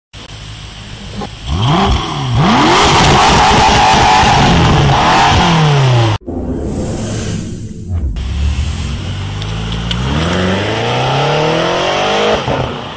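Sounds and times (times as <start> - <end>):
car engine starting and revving: 1.1 - 12.9.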